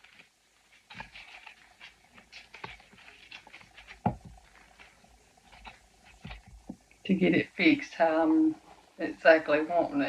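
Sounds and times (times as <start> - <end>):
rustling of craft pieces: 0.0 - 6.8.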